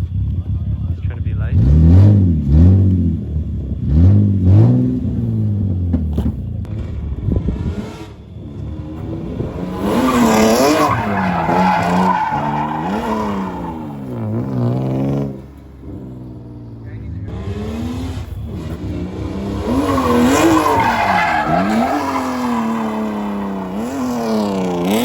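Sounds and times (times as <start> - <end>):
car engine revving: 0.0 - 25.0
tyres squealing: 9.6 - 15.5, 19.2 - 24.6.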